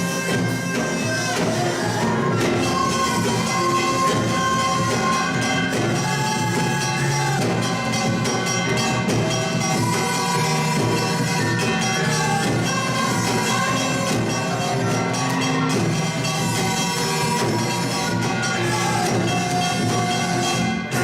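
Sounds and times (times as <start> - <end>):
steady percussion beat: 0.0 - 21.0.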